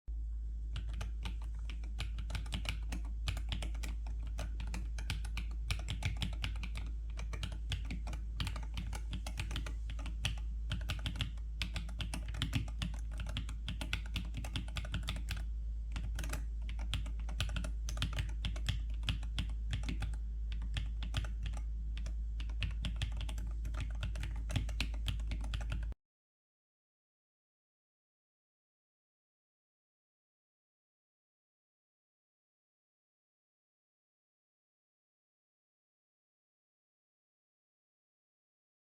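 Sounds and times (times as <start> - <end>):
steady low hum: 0.1 - 26.0
fast keyboard typing: 0.8 - 26.0.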